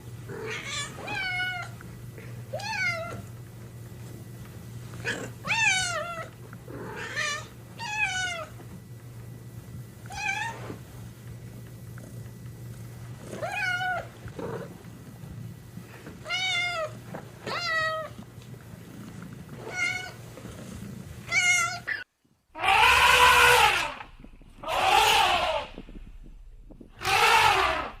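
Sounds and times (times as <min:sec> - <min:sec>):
steady low hum: 0:00.0 - 0:28.0
cat meowing: 0:22.6 - 0:24.0, 0:24.6 - 0:25.7, 0:27.0 - 0:28.0.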